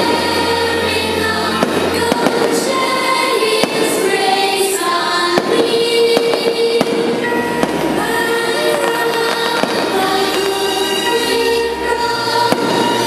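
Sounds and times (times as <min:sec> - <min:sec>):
patriotic music: 0:00.0 - 0:13.0
fireworks bangs and crackles: 0:01.5 - 0:04.2, 0:05.3 - 0:11.1, 0:12.4 - 0:13.0.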